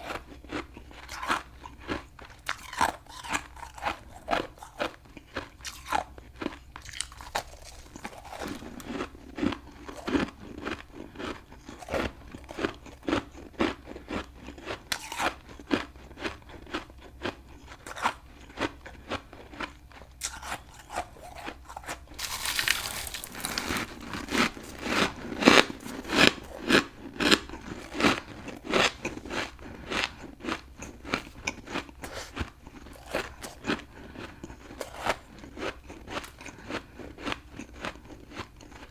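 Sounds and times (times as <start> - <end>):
crunchy chewing and biting: 0.0 - 38.9.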